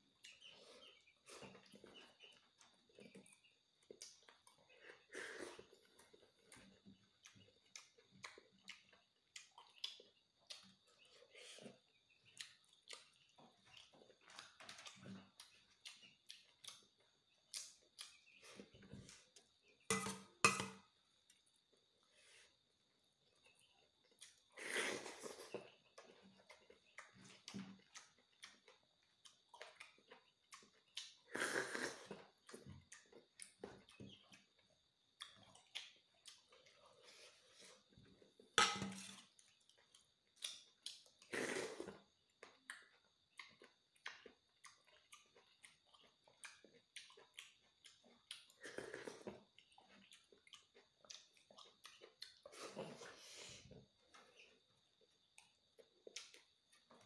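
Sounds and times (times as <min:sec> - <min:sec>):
chewing and slurping: 0:00.2 - 0:19.8, 0:23.5 - 0:57.0
spoon striking steel bowl: 0:19.9 - 0:20.8.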